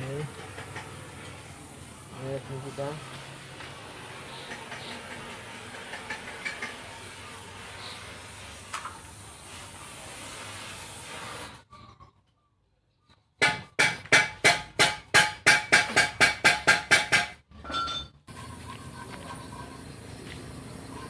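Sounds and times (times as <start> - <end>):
steady hiss: 6.7 - 11.6
hammer striking metal: 13.4 - 18.1.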